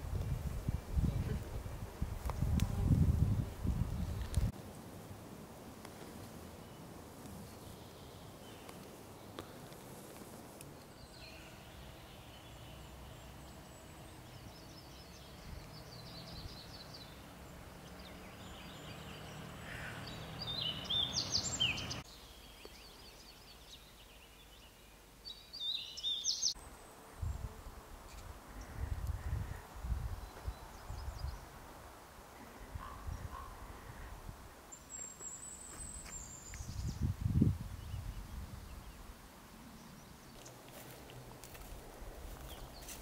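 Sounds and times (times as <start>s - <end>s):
soft outdoor background: 0.0s - 43.0s
songbirds singing: 10.6s - 26.6s, 28.5s - 31.6s, 34.7s - 41.8s, 42.4s - 43.0s.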